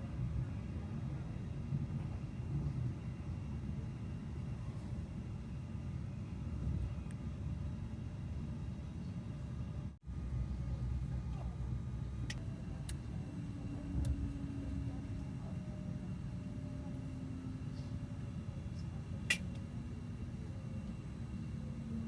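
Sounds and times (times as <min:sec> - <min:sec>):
train rumble on board: 0:00.0 - 0:05.1
faint hum: 0:00.0 - 0:22.0.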